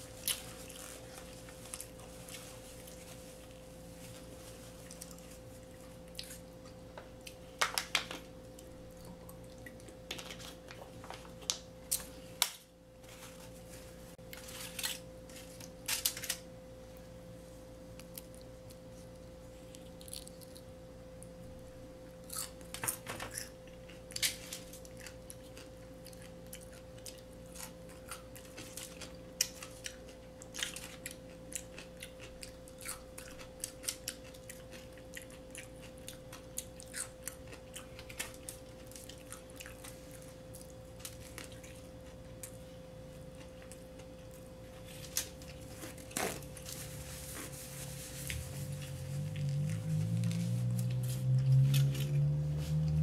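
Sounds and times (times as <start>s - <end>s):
faint hum: 0.0s - 53.0s
crunching bites and chewing: 19.7s - 20.8s, 22.2s - 42.6s.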